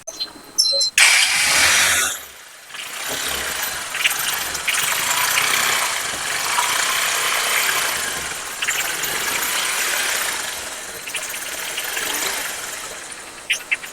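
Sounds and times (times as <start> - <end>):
motorcycle engine running: 1.0 - 13.9.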